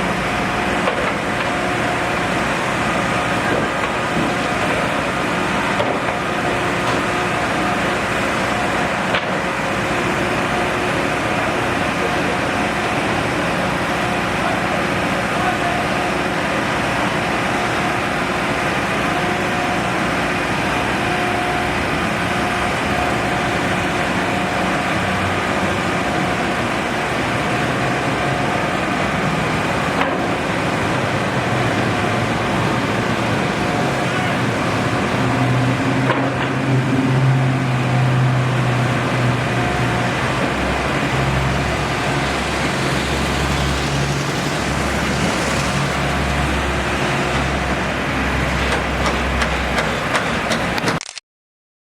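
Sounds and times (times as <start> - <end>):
heavy vehicle engine drone: 0.0 - 51.0
road traffic hum: 0.0 - 51.0.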